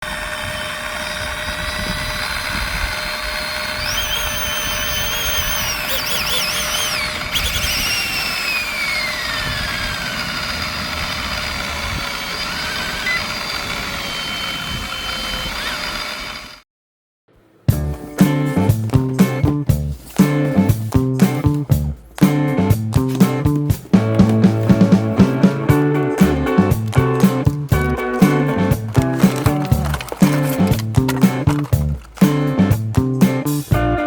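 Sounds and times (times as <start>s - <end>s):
rc helicopter motors whining: 0.0s - 16.6s, 25.7s - 32.3s.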